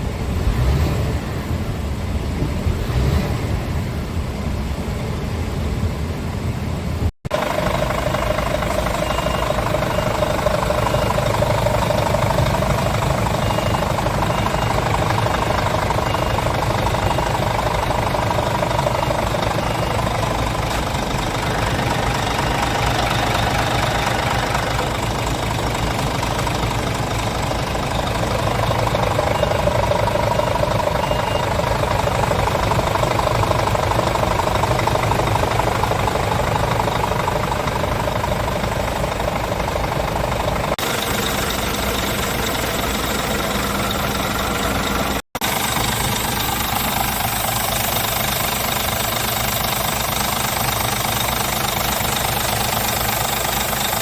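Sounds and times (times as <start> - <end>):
diesel truck engine idling: 0.0 - 54.0
faint high beep: 7.5 - 25.3, 27.9 - 33.8.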